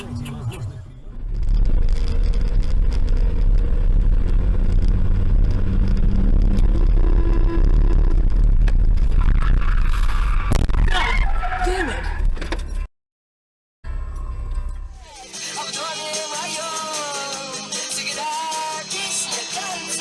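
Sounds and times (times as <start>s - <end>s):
car engine and road rumble: 0.0s - 12.9s, 13.9s - 15.2s.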